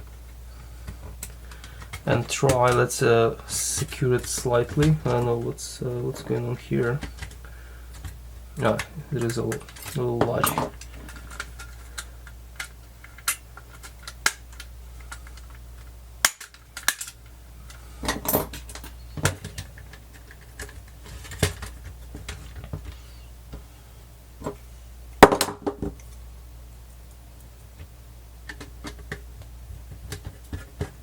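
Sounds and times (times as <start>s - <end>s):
plastic parts clicking: 16.3s - 22.9s.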